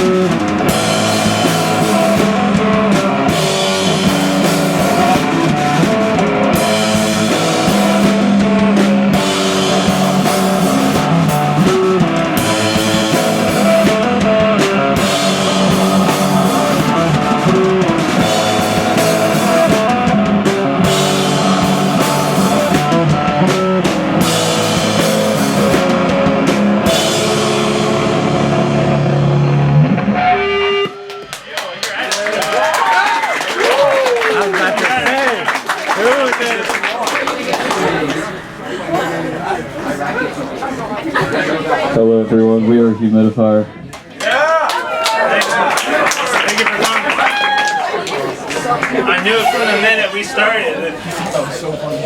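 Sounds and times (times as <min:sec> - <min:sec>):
drum kit beat: 0:00.0 - 0:30.0
rock guitars: 0:00.0 - 0:31.6.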